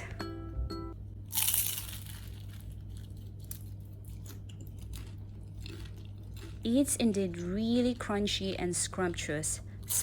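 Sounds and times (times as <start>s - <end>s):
crunch of biting fried roll: 1.3s - 6.5s.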